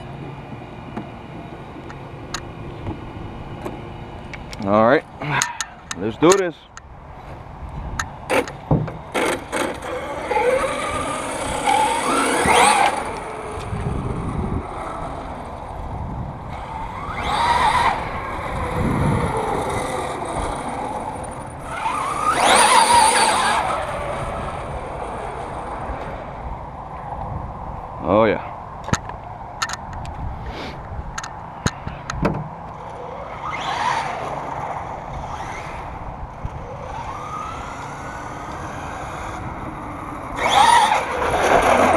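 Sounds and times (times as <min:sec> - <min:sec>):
rc truck drivetrain whining: 0:07.2 - 0:27.0, 0:31.1 - 0:41.9.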